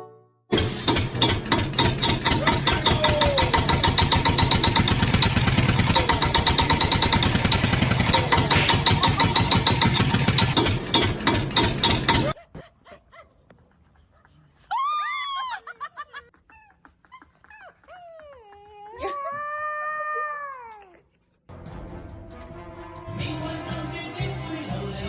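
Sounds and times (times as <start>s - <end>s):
rattling engine-like noise: 0.6s - 12.4s.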